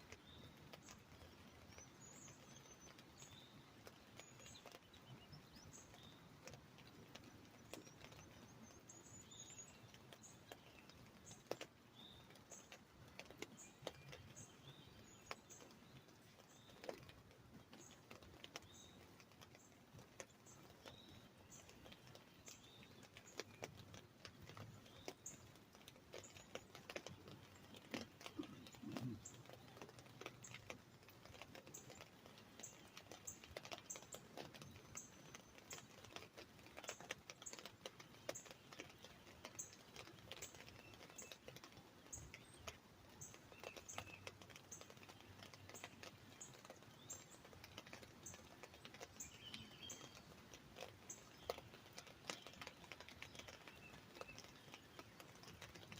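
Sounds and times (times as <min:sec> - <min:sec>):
raindrops tapping on umbrella: 0:00.0 - 0:55.9
bird chirps: 0:24.4 - 0:30.8, 0:36.8 - 0:50.3.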